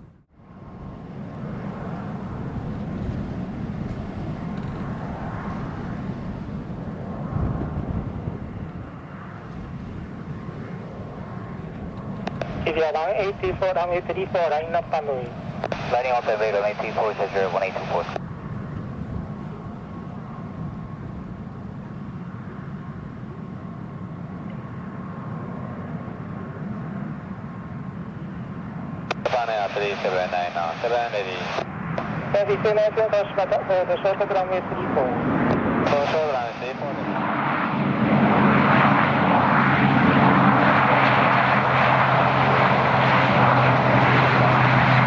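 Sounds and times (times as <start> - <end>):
distant jet engines rumbling: 0.0 - 45.0
wind buffeting microphone: 0.6 - 12.7, 18.2 - 21.9
low hum: 29.1 - 45.0.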